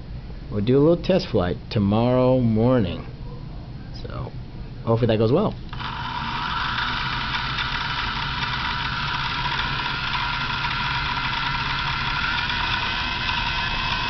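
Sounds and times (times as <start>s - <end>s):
model helicopter rotor whine: 5.7s - 14.0s.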